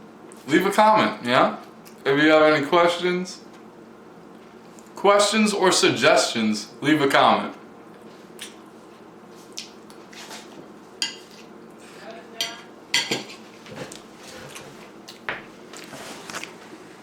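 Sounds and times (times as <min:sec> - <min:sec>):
cutlery clinking on a plate: 0:12.4 - 0:13.4.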